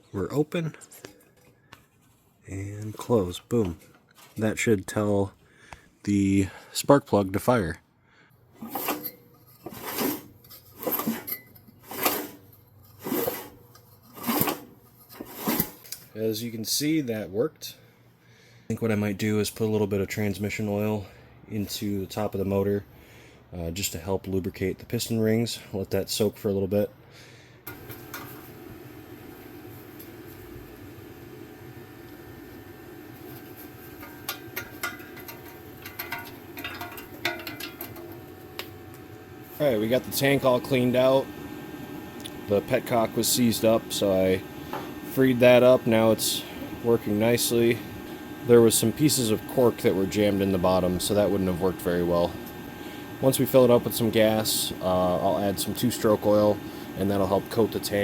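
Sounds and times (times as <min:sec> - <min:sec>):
recoil starter pulls: 0:33.2 - 0:38.7.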